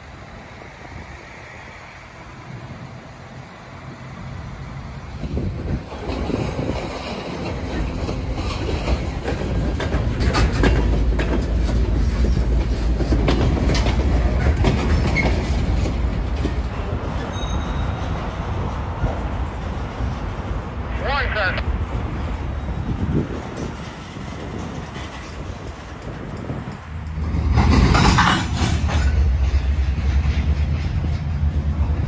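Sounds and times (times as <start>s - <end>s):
freight train rumbling past: 0.0s - 32.0s
wheels clicking over rail joints: 5.2s - 20.5s, 23.3s - 32.0s
wheel squeal: 17.2s - 18.3s.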